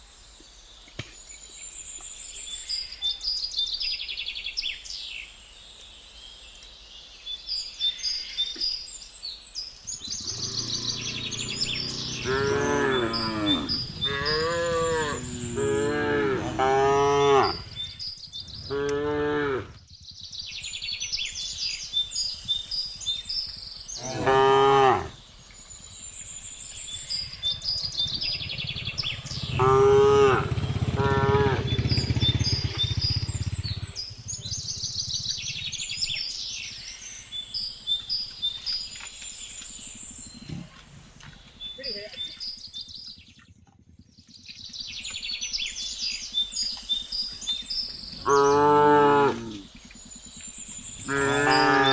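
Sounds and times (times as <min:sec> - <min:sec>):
cattle mooing: 0:10.3 - 0:17.8, 0:18.6 - 0:19.8, 0:24.0 - 0:25.2, 0:29.3 - 0:32.1, 0:48.2 - 0:49.6, 0:51.0 - 0:51.9.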